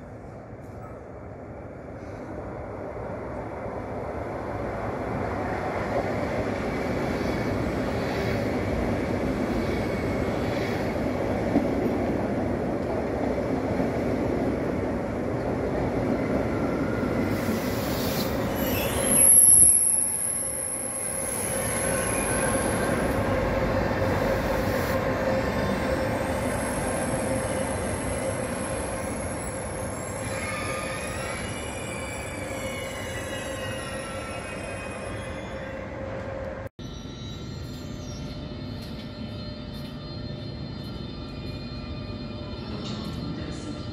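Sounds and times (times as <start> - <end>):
high-pitched brake squeal: 16.6 - 23.1, 24.0 - 36.2, 36.8 - 43.6.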